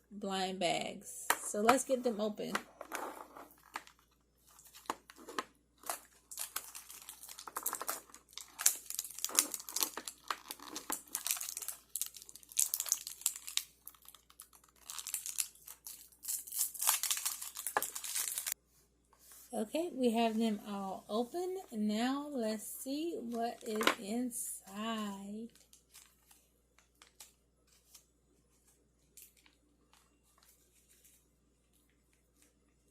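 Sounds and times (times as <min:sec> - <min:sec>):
plastic packets tearing and crinkling: 0:03.5 - 0:18.6, 0:25.5 - 0:28.1.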